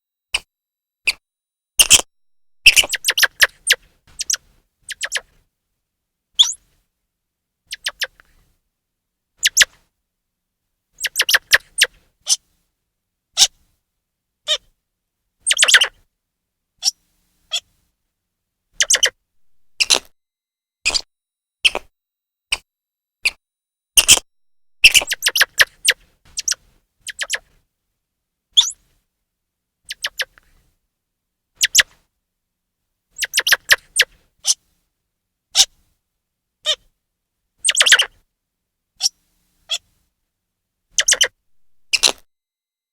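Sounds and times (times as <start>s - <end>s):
squirrel chirping calls: 1.8s - 5.2s, 9.4s - 9.7s, 11.0s - 11.9s, 15.5s - 15.9s, 18.8s - 20.1s, 24.8s - 27.4s, 28.6s - 28.8s, 29.9s - 30.3s, 33.2s - 34.6s, 37.6s - 38.1s, 41.0s - 42.2s.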